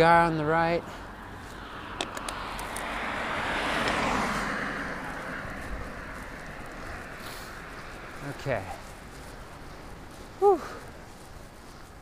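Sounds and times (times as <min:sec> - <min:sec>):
car driving past: 0:01.3 - 0:08.4.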